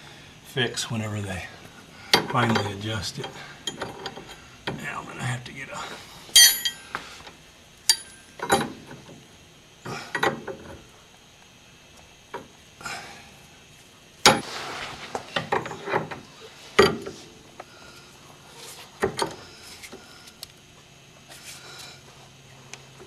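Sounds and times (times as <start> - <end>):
metal tools clinking and knocking: 2.2 - 4.4, 6.4 - 6.8.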